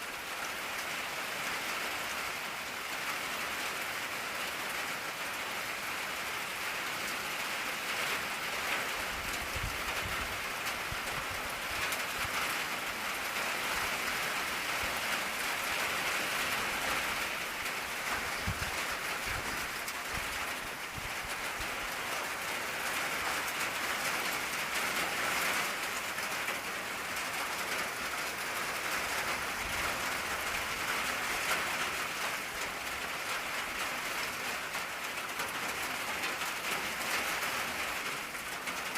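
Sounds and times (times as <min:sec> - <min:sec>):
rain drumming on a tin roof: 0:00.0 - 0:38.9.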